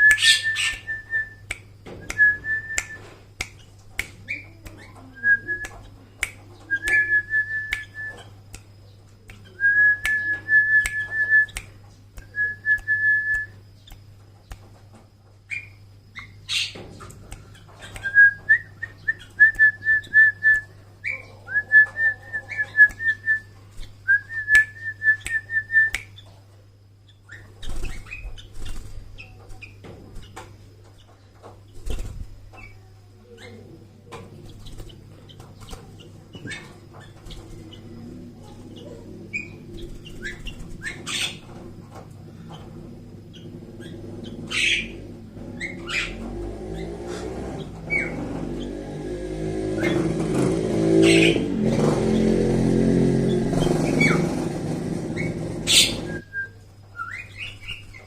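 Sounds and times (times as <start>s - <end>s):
high trilled whistles: 0.0s - 3.1s.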